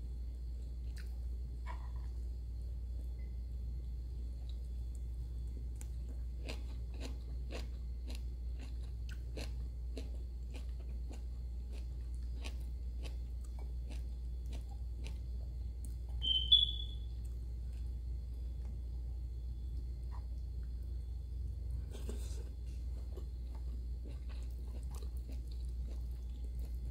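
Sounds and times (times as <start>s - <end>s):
person chewing food: 0.7s - 2.4s, 4.4s - 16.2s, 17.2s - 18.8s, 21.7s - 26.9s
short high squeak: 16.2s - 17.0s.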